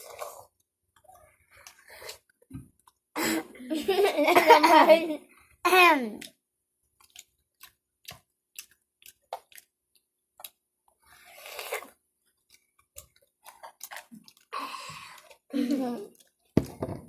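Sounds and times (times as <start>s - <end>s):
wet chewing and lip smacks: 6.2s - 14.6s.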